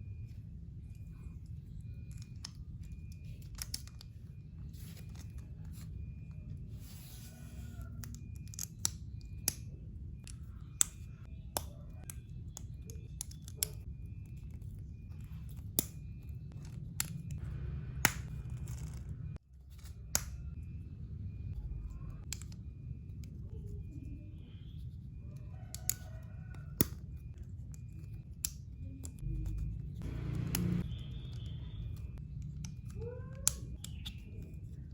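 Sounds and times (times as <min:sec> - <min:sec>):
steady low hum: 0:26.6 - 0:33.2.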